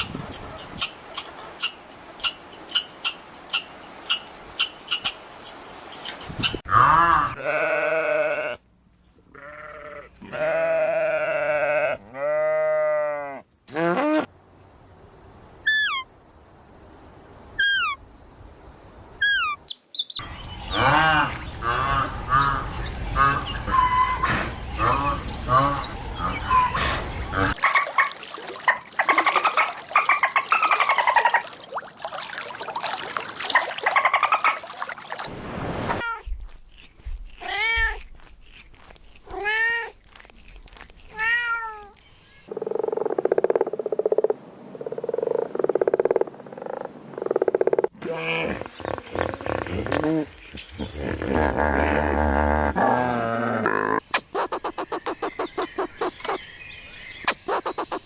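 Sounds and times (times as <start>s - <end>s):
high hooked bird calls: 19.2s - 27.6s, 53.7s - 58.0s
rapidly pulsing animal call: 53.6s - 56.4s, 57.2s - 58.0s.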